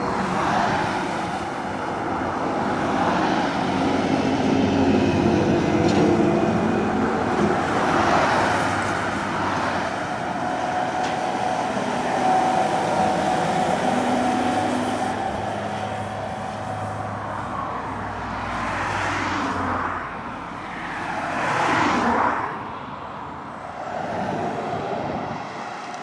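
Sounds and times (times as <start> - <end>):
truck diesel engine under load: 0.0 - 20.7
tyre and road noise: 0.0 - 26.0.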